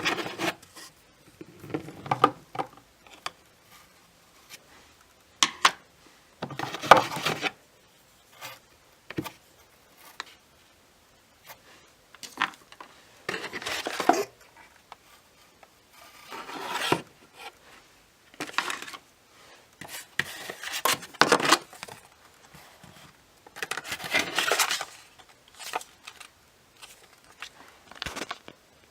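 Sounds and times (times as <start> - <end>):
packaging rustling and scraping: 0.0 - 2.5, 6.4 - 7.6, 12.2 - 17.6, 18.4 - 19.0, 19.8 - 28.6.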